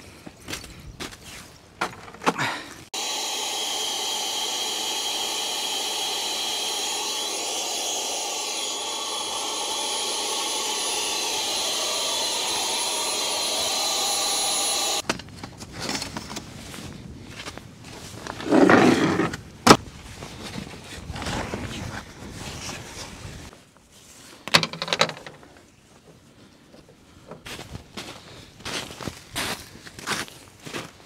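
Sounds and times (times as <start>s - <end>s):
electric air pump whirring: 2.9s - 15.0s, 18.4s - 19.4s.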